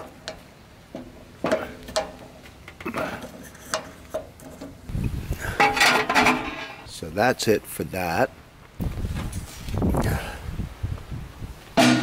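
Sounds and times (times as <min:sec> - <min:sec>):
metal clicks and knocks: 0:00.0 - 0:04.8
metal parts clattering: 0:05.6 - 0:06.9.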